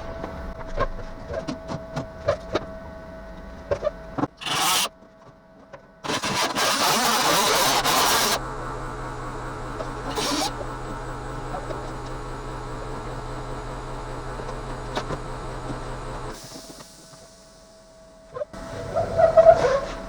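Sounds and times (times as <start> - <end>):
welder humming: 4.4 - 4.9, 6.0 - 17.7.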